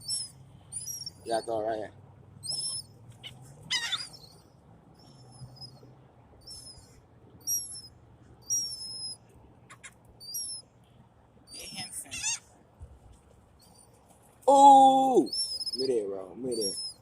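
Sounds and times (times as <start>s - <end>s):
high-pitched bird squeals: 0.0s - 1.8s, 2.4s - 5.8s, 6.4s - 10.6s, 11.5s - 12.4s, 14.5s - 17.0s.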